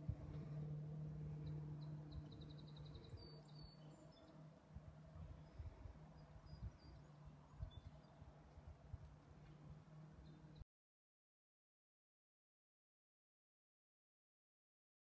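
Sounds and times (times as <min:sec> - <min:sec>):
steady low hum: 0:00.0 - 0:10.6
small bird trilling and chirping: 0:01.8 - 0:04.4.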